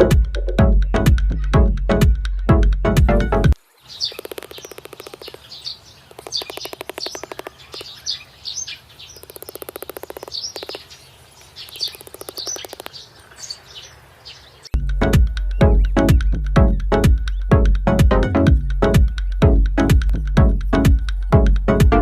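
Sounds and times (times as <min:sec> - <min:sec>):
birds chirping: 0:00.0 - 0:22.0
rapid rattling clicks: 0:04.1 - 0:05.5, 0:06.1 - 0:08.0, 0:09.2 - 0:10.8, 0:11.6 - 0:13.0.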